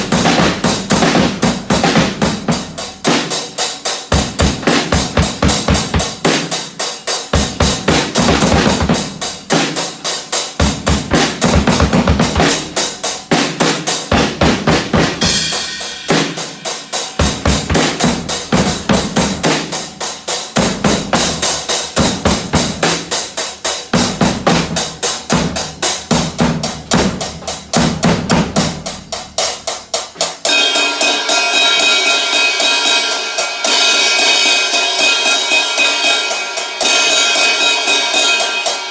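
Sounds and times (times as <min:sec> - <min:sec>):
drum kit playing fast beat: 0:00.0 - 0:38.9.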